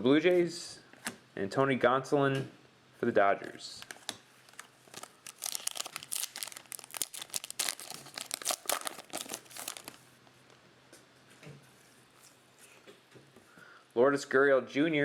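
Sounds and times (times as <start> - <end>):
plastic wrapper crinkling and tearing: 3.8 - 10.1.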